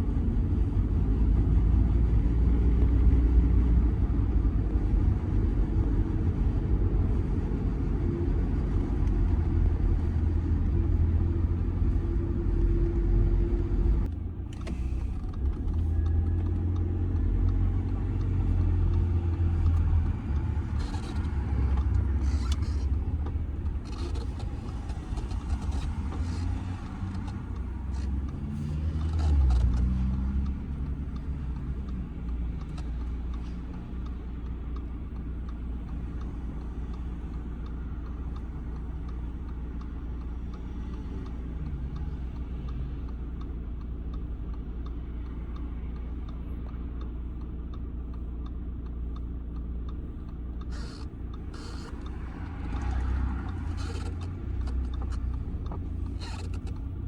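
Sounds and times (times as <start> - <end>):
car engine hum from inside: 0.0 - 57.0
regular light ticking: 14.0 - 57.0.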